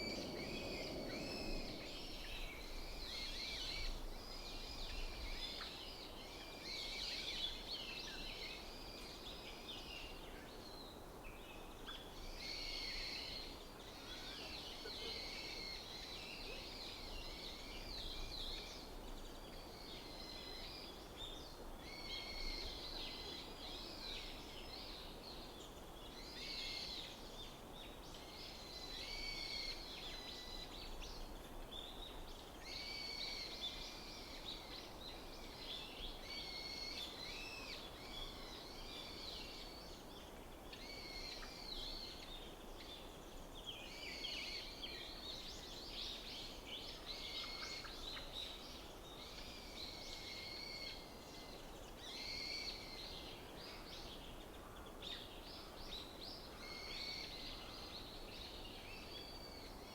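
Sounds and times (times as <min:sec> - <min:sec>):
low steady rumble: 0:00.0 - 0:02.9.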